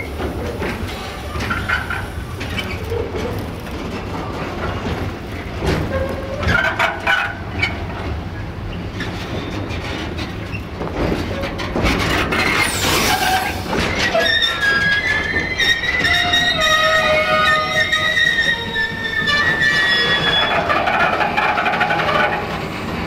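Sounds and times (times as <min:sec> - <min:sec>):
train wheels clacking over rail joints: 0:00.0 - 0:23.0
wheels squealing on rails: 0:00.0 - 0:23.0.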